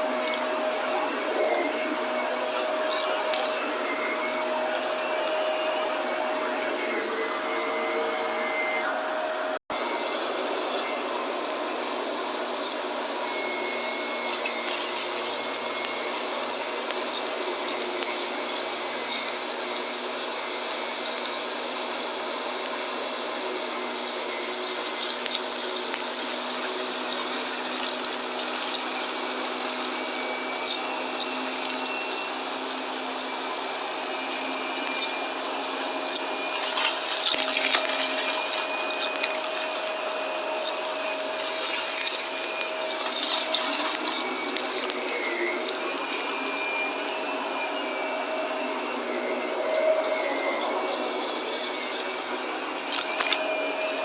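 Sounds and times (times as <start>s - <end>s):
vacuum cleaner running: 0.0s - 54.0s
debris crunching and crackling: 24.0s - 48.8s, 49.4s - 54.0s.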